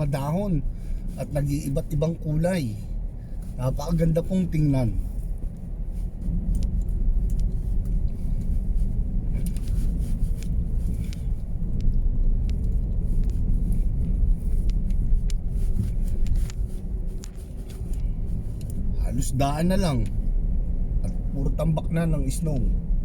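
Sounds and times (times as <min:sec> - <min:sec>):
car driving on snowy road: 0:00.0 - 0:23.0.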